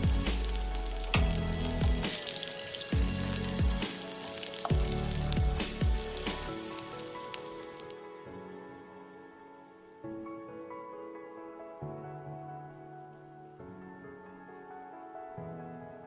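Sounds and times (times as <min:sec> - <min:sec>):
oil sizzling in a pan: 0:00.0 - 0:07.9
soft background music: 0:00.0 - 0:16.0.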